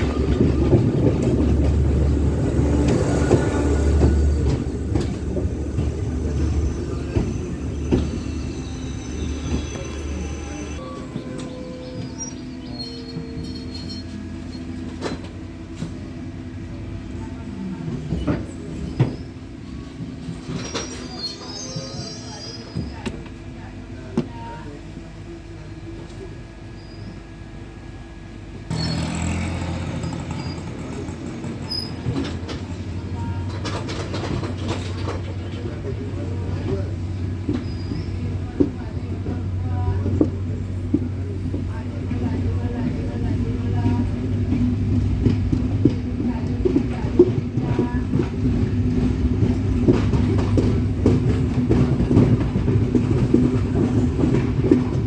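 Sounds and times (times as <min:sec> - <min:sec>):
wheels clicking on rails: 0:00.0 - 0:16.0, 0:28.7 - 0:55.0
train running on tracks: 0:00.0 - 0:55.0.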